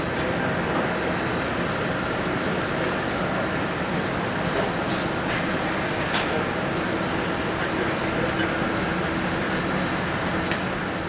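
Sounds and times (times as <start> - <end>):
jet airliner rushing roar: 7.3 - 11.0.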